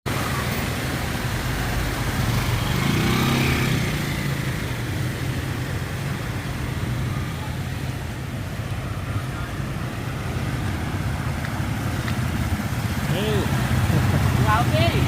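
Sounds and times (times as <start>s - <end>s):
motor vehicle engine running: 7.8s - 15.0s.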